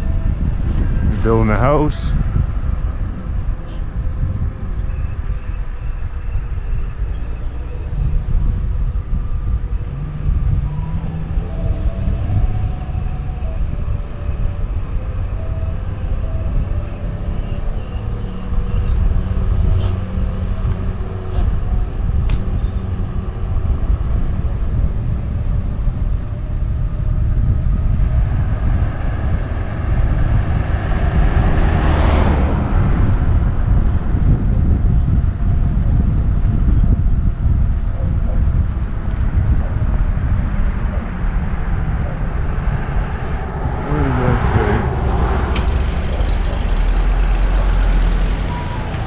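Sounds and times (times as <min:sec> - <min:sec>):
road rumble: 0:00.0 - 0:49.0
wind buffeting: 0:00.0 - 0:49.0
vehicle passing: 0:18.1 - 0:49.0.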